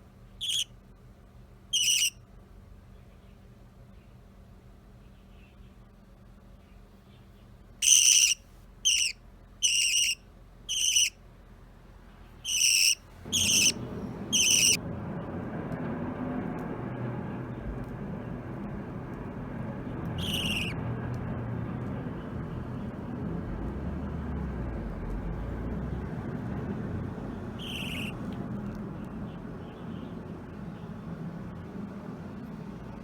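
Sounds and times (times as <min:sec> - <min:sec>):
budgerigar chirping: 0:00.4 - 0:00.7, 0:01.7 - 0:02.2, 0:07.8 - 0:11.2, 0:12.4 - 0:14.8, 0:20.2 - 0:20.7, 0:27.6 - 0:28.2
steady low rumble: 0:07.6 - 0:33.0.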